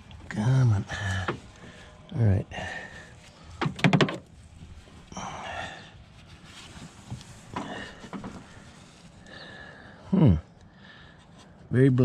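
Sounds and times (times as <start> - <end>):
rustle: 4.3 - 9.6.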